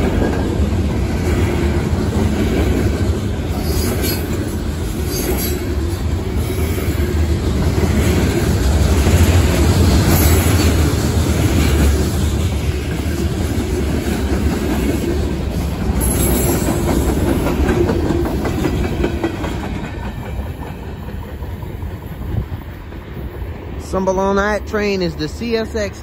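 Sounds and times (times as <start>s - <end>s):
freight train cars rolling past: 0.0s - 26.0s
steel wheels on rails: 0.0s - 26.0s.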